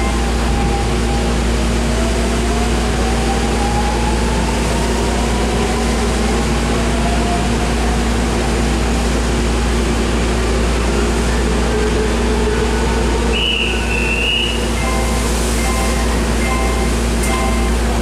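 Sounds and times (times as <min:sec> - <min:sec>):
faint train whine: 0:00.0 - 0:18.0
train air conditioning hum: 0:00.0 - 0:18.0.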